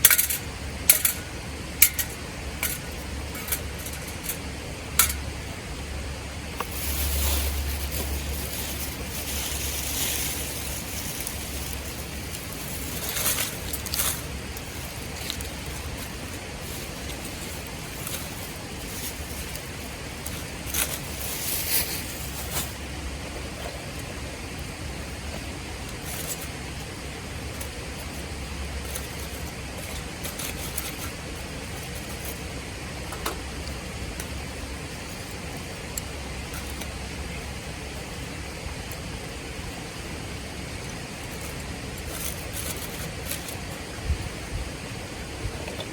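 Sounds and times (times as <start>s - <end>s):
steady rushing noise: 0.0s - 33.0s
steady hiss: 0.0s - 45.9s
wood fire crackling and popping: 6.5s - 39.0s
wind rumbling on microphone: 40.2s - 45.9s.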